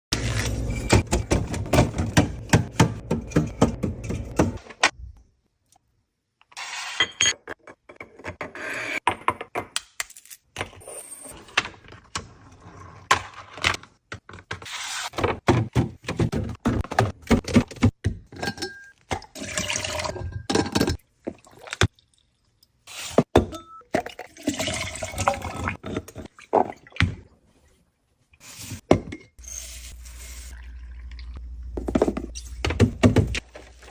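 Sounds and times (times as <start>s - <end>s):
containers and bottles clunking: 15.2s - 21.9s, 23.2s - 27.3s.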